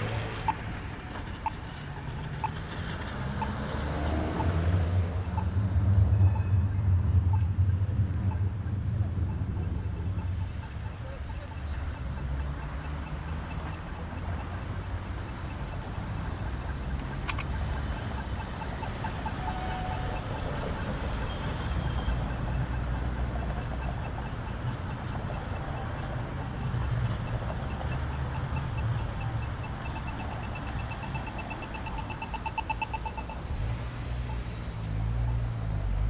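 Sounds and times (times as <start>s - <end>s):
road traffic rumble: 0.0s - 36.0s
rapid pulsing electronic beep: 5.2s - 33.6s.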